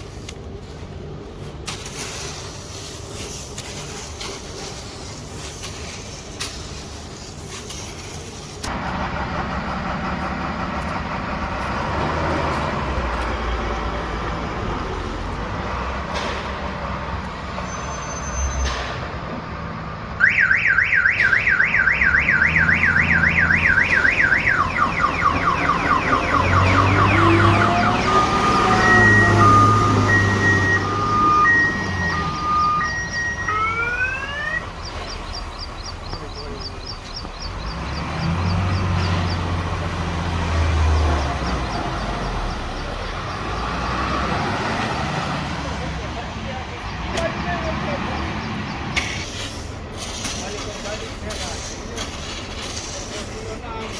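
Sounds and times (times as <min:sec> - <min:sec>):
engine running: 0:08.0 - 0:17.6, 0:21.9 - 0:52.8
vehicle alarm cycling tones: 0:20.2 - 0:44.1.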